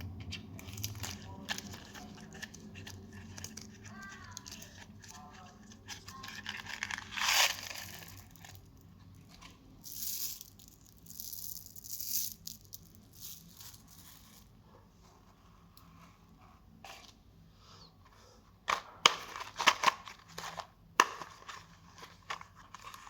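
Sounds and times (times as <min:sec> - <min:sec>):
plastic packaging crinkling: 0:00.6 - 0:09.5.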